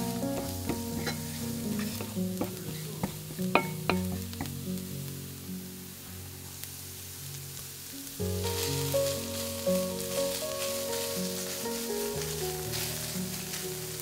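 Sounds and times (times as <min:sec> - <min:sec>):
wooden spatula stirring: 0:00.0 - 0:04.5
food sizzling in a frying pan: 0:00.0 - 0:14.0
soft background music: 0:00.0 - 0:14.0.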